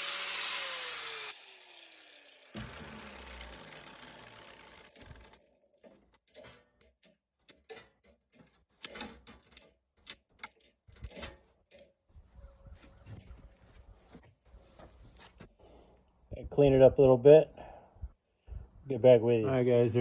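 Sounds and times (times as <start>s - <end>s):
power tool running: 0.0s - 5.6s.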